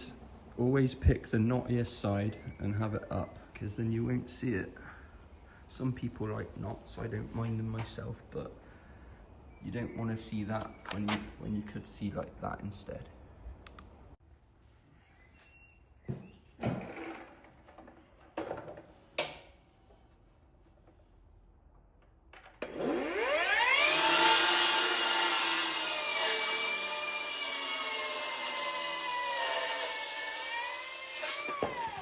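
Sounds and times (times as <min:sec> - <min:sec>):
electric power tool on wood: 0:22.6 - 0:32.0.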